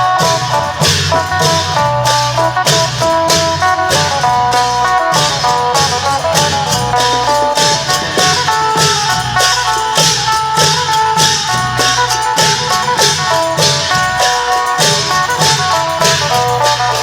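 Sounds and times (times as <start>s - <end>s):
long drums: 0.0s - 17.0s
lute fast melody: 0.0s - 17.0s
cymbal crashes: 0.1s - 17.0s.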